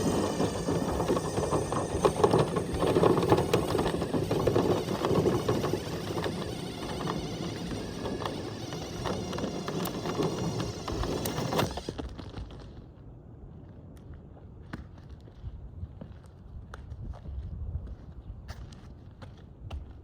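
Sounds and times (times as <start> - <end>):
power drill spinning: 0.0 - 12.3.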